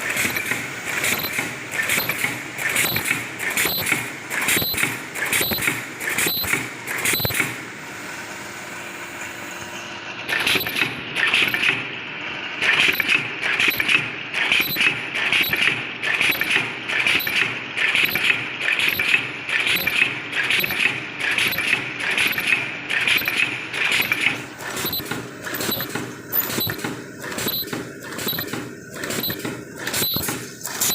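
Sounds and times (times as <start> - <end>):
mechanical clatter: 0.0 - 7.6, 10.3 - 11.9, 12.6 - 30.9
machine humming: 16.2 - 30.9.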